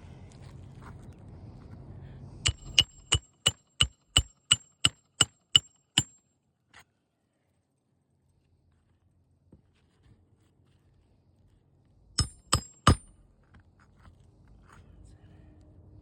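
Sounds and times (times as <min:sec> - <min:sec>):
hammer striking metal: 0:02.5 - 0:06.2, 0:12.2 - 0:13.1.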